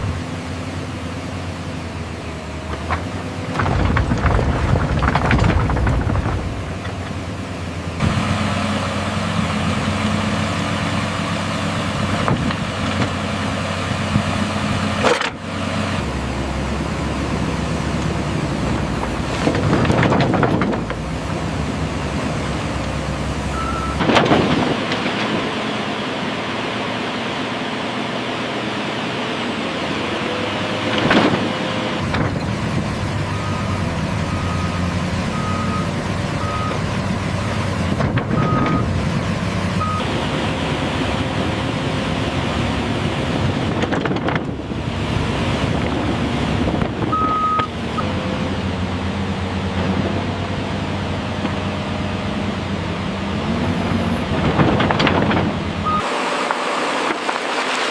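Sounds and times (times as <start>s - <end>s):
excavator diesel engine: 0.0s - 57.9s
backup alarm beeps: 23.5s - 24.0s, 47.2s - 48.1s.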